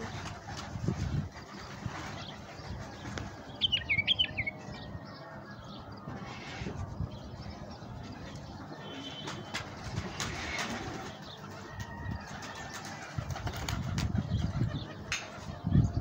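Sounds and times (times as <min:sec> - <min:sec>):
doves cooing: 0:00.0 - 0:16.0
bird whistles and chirps: 0:03.6 - 0:04.6.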